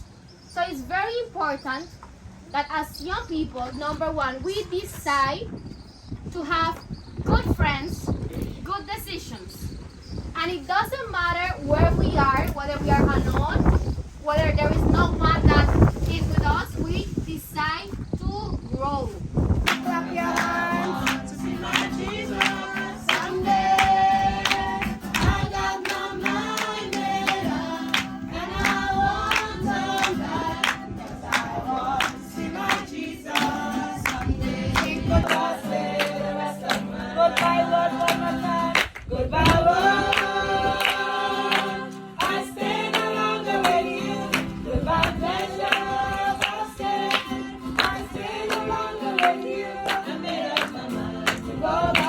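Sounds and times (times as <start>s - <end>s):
group singing worship song: 19.4s - 52.0s
rhythmic hand clapping: 19.6s - 52.0s.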